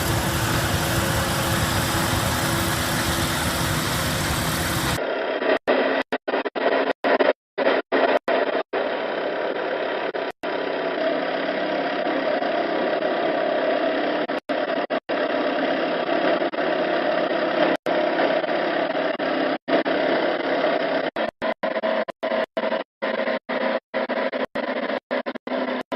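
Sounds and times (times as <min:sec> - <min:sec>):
engine running steadily: 0:00.0 - 0:05.0.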